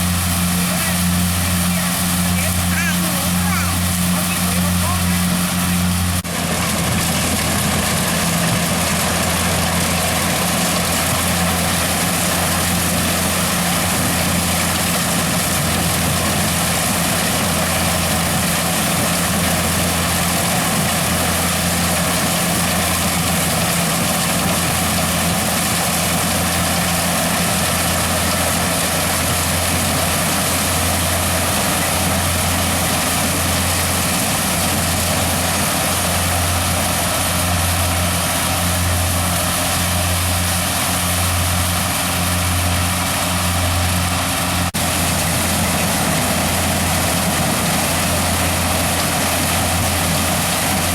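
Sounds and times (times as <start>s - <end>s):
harvester engine humming: 0.0s - 50.9s.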